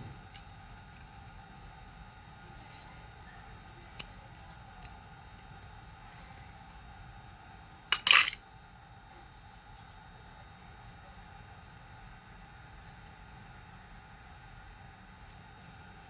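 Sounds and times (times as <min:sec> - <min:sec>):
metal parts clinking on workbench: 0:07.9 - 0:08.4.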